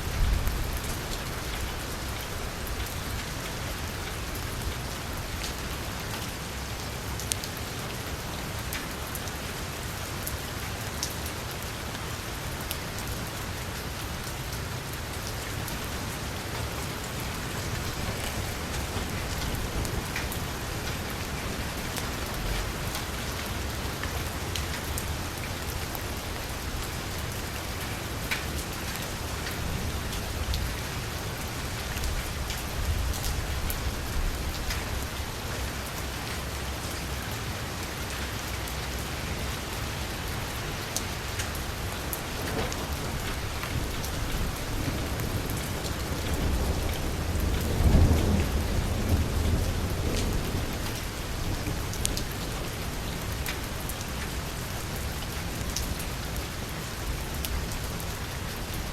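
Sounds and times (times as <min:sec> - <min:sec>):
low rumble of thunder: 0:00.0 - 0:05.6, 0:15.8 - 0:27.8, 0:28.9 - 0:35.8, 0:41.9 - 0:54.3
heavy rain on vehicle roof: 0:00.0 - 0:58.9.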